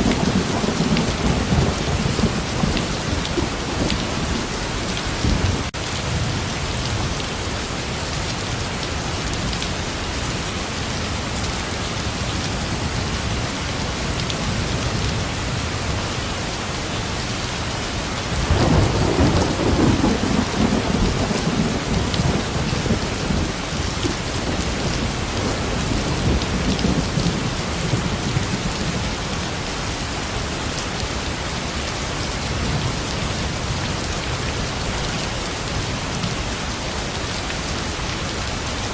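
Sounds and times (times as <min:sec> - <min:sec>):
thunder rumbling: 0:00.0 - 0:07.2, 0:18.3 - 0:29.5
steady rain falling: 0:00.0 - 0:38.9.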